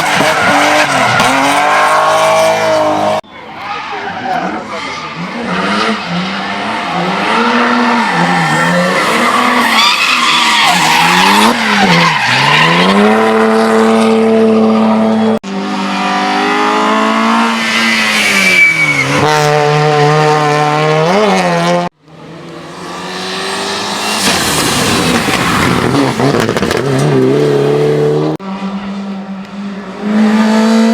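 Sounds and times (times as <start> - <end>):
race car engines at high revs: 0.0 - 3.2, 3.8 - 30.9
tyres squealing: 7.5 - 12.8, 17.5 - 19.3.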